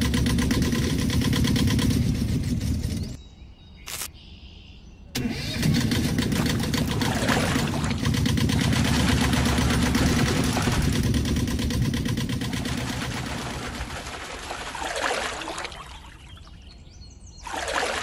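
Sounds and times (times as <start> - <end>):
engine chugging: 0.0 - 3.2, 5.2 - 15.0.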